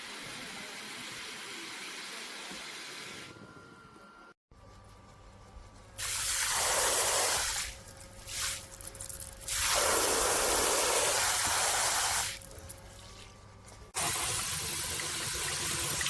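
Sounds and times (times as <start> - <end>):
water spraying from shower head: 6.0 - 12.4.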